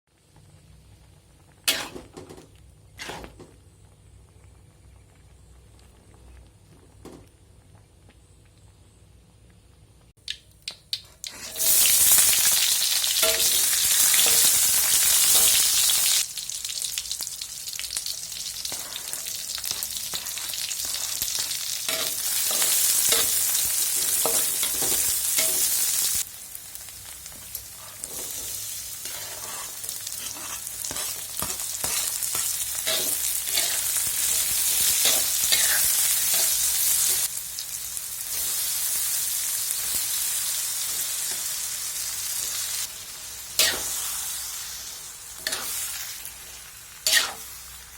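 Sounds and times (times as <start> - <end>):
squid sizzling in hot pan: 10.3 - 47.9.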